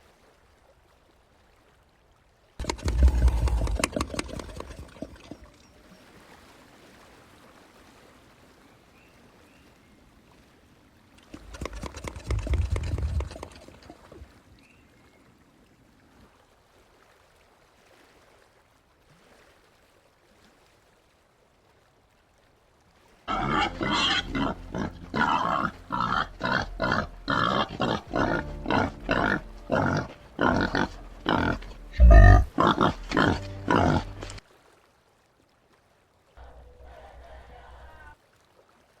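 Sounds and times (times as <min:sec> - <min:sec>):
peccary grunting: 0:02.6 - 0:05.2, 0:23.3 - 0:34.4.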